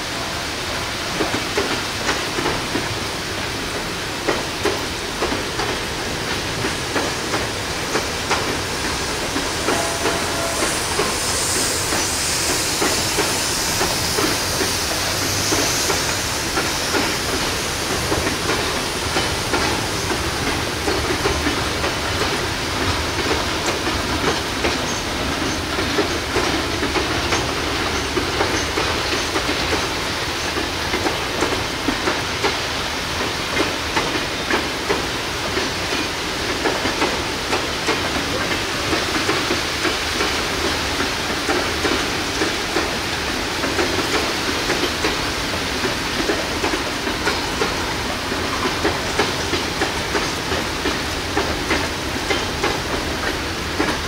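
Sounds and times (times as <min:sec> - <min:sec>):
train wheels clacking over rail joints: 0:00.1 - 0:54.0
rain hissing: 0:00.6 - 0:29.2.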